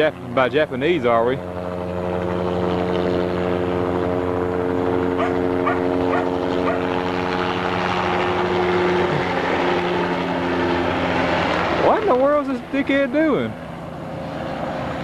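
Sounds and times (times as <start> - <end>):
helicopter flying overhead: 0.0 - 15.0
faint yelps: 5.2 - 6.9.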